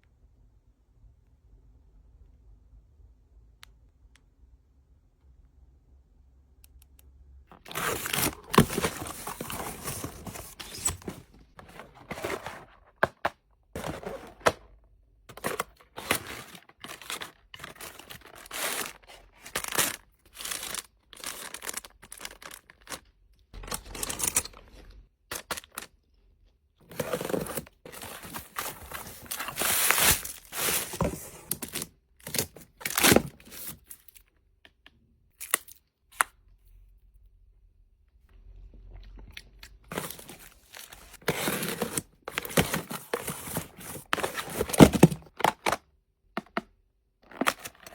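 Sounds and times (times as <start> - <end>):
packaging tearing and crinkling: 7.5 - 11.2, 15.3 - 23.0, 26.9 - 33.8.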